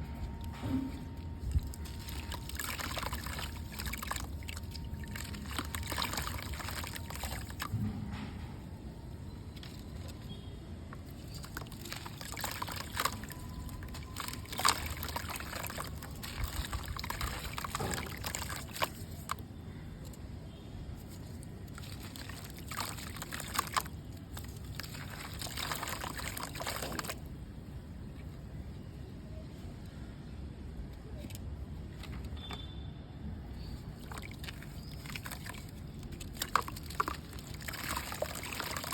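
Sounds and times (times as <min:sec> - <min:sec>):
mud crackling and trickling in water: 0:00.0 - 0:08.0, 0:09.5 - 0:28.4, 0:33.4 - 0:38.9.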